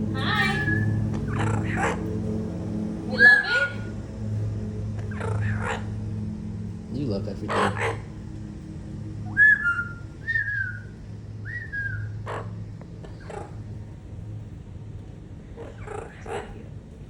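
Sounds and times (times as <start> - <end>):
parrot squawking: 0.1 - 2.1, 3.1 - 3.9, 5.0 - 6.0, 7.4 - 8.1, 9.2 - 13.6, 15.6 - 16.7
parrot whistling: 0.2 - 2.0, 9.2 - 12.5.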